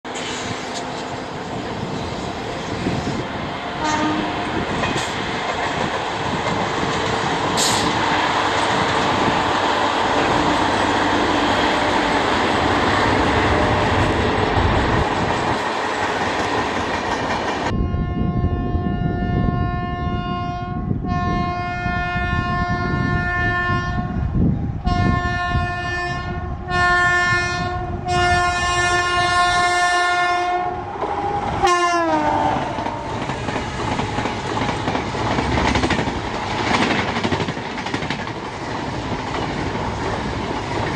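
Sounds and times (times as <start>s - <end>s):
train wheels rushing on rails: 0.1s - 17.8s, 26.5s - 40.9s
locomotive air horn blasts: 3.8s - 4.6s, 17.7s - 24.2s, 24.8s - 33.2s.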